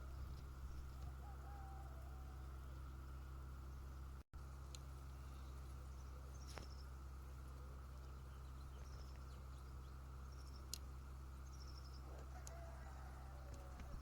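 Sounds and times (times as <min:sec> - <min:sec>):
steady low hum: 0:00.0 - 0:14.0
faint high bird chirps: 0:05.2 - 0:07.0, 0:08.0 - 0:10.8, 0:11.4 - 0:14.0.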